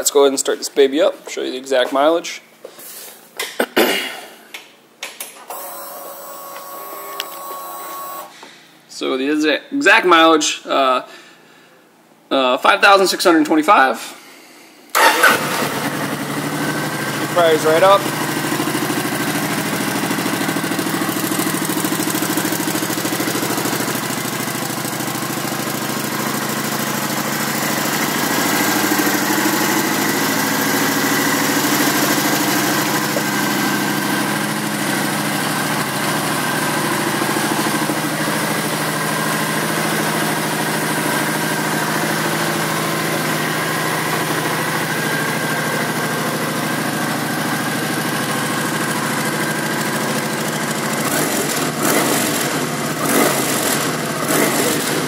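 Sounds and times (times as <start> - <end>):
motorcycle engine idling: 15.5 - 55.0.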